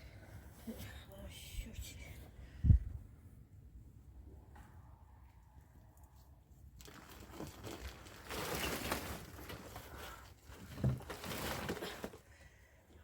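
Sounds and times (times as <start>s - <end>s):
crinkling rustling: 6.8s - 12.4s.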